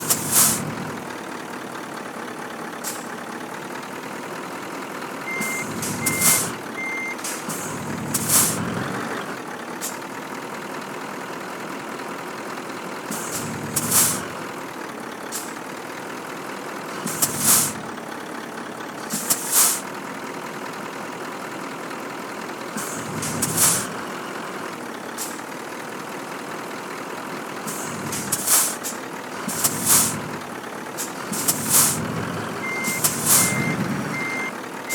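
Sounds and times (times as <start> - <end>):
air brakes hissing: 0.0 - 1.0, 2.8 - 3.2, 5.3 - 8.9, 9.8 - 10.0, 13.1 - 14.3, 15.3 - 15.7, 17.0 - 17.9, 19.0 - 20.0, 22.8 - 24.0, 25.1 - 25.5, 27.7 - 34.9
truck diesel engine running: 0.0 - 34.9
short beeps: 5.3 - 7.2, 32.6 - 34.6.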